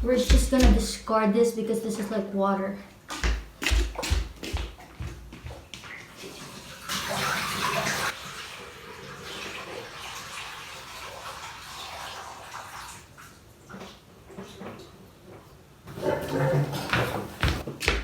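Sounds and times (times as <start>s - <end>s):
water being poured away: 5.9s - 13.9s.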